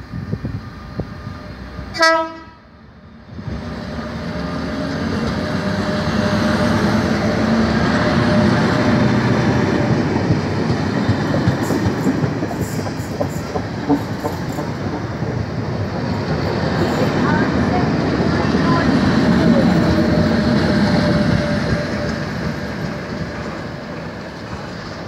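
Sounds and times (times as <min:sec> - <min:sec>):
train passing at speed: 0:00.0 - 0:25.0
wheels clicking over rail joints: 0:09.8 - 0:17.5.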